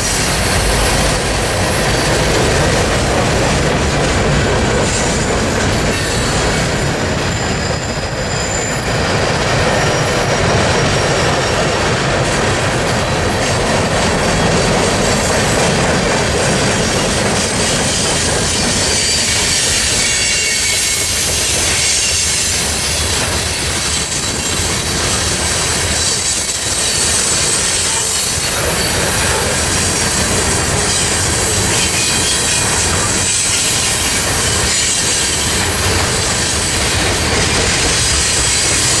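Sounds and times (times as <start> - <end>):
train wheels rolling on rail: 0.0 - 39.0
high-pitched wheel squeal: 17.3 - 39.0.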